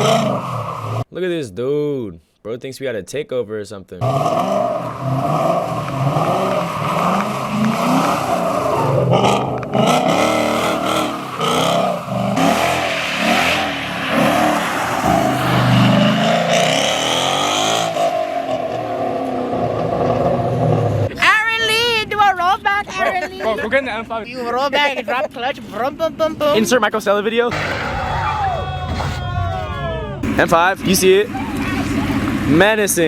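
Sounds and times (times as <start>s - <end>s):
car engine revving hard: 0.0s - 1.0s, 4.0s - 21.1s
tyres squealing on pavement: 4.6s - 19.8s, 27.5s - 33.0s.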